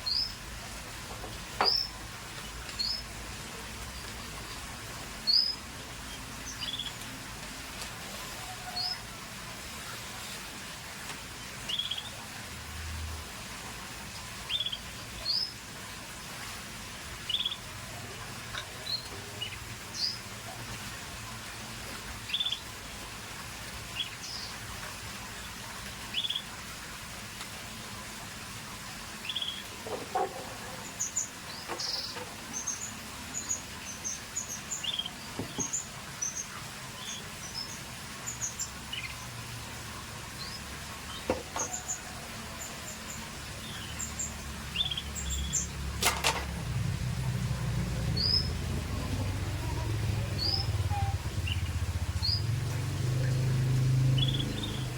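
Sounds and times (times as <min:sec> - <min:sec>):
canaries chirping: 0:48.0 - 0:52.5, 0:53.5 - 0:54.9.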